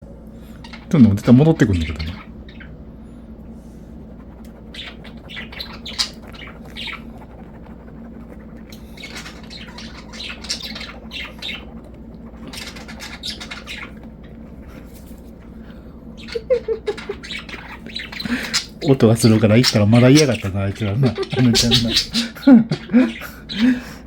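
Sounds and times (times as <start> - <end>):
budgerigar chattering: 4.2 - 14.4, 16.2 - 23.9.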